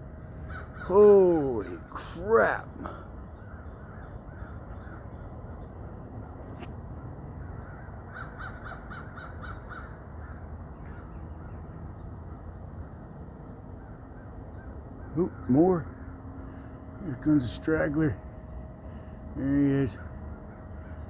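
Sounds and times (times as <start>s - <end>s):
crows cawing: 0.3s - 1.8s, 2.8s - 5.4s, 7.4s - 11.1s, 13.8s - 17.2s, 19.9s - 21.0s
steady low rumble: 10.0s - 21.0s.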